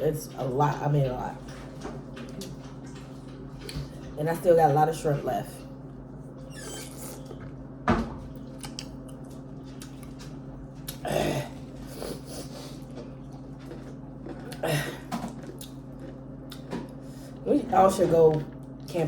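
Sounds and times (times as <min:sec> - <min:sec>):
person chewing shrimp: 0:08.3 - 0:11.0, 0:12.0 - 0:14.6, 0:15.2 - 0:17.1
wet mouth clicks and smacks: 0:08.6 - 0:10.2.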